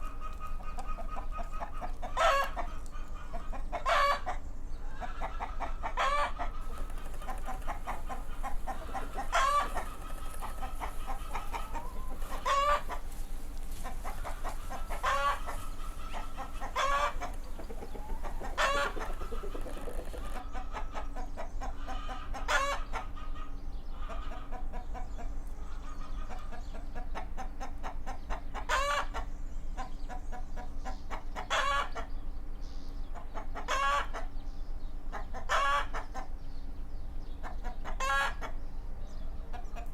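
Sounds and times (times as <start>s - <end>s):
chickens clucking: 0.0s - 29.3s, 39.5s - 39.9s.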